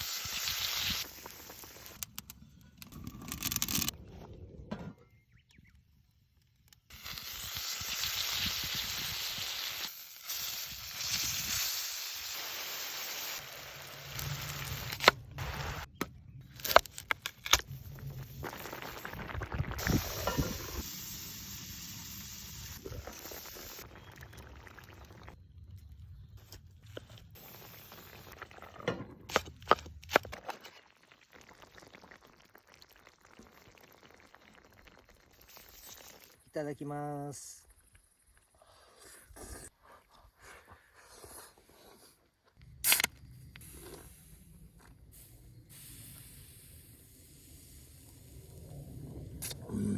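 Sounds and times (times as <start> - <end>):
meat sizzling over fire: 0.0 - 2.0, 6.9 - 15.9, 17.7 - 25.4, 27.4 - 28.7, 30.9 - 36.4, 45.1 - 49.6
campfire crackling: 0.0 - 3.9, 6.3 - 15.9, 16.5 - 25.9, 27.0 - 28.8, 30.8 - 36.4.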